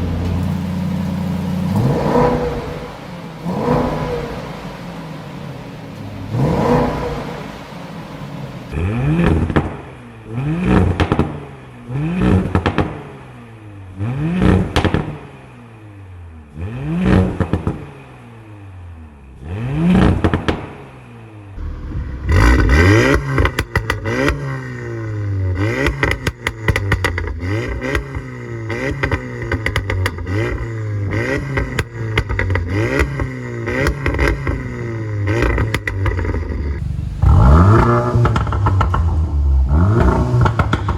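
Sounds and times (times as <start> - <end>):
exhaust crackling: 0.0 - 8.8, 21.6 - 40.9
car engine revving: 0.0 - 13.4, 21.6 - 40.9.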